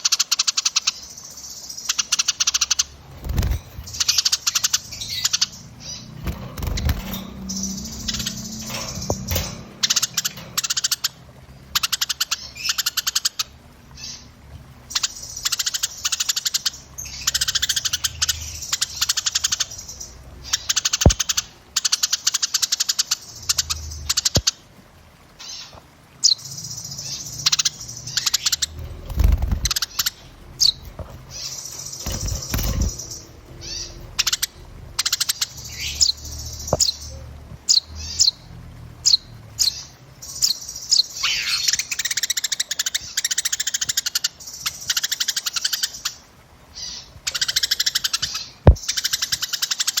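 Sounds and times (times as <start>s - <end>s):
songbirds trilling and chirping: 0.0s - 50.0s
low rumbles: 2.9s - 11.8s, 26.9s - 39.6s.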